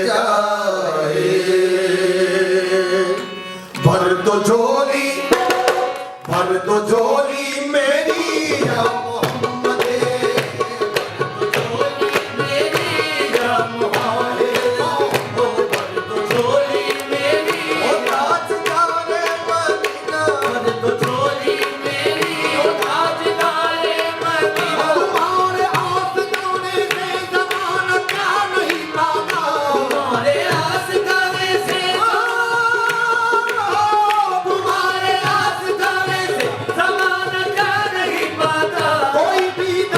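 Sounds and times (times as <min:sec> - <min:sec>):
person singing: 0:00.0 - 0:10.9
tabla drumming: 0:03.8 - 0:39.9.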